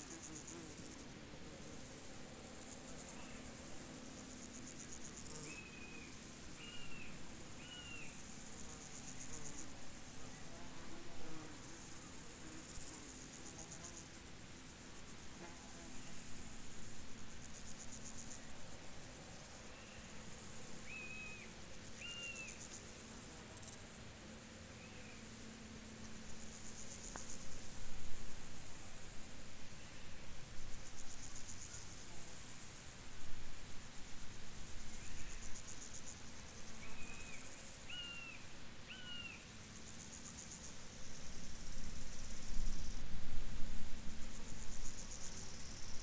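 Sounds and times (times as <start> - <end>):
insects chirping trills: 1.8 - 11.0, 11.7 - 46.0
short higher insect calls: 4.2 - 9.7, 20.8 - 22.8, 34.8 - 40.7.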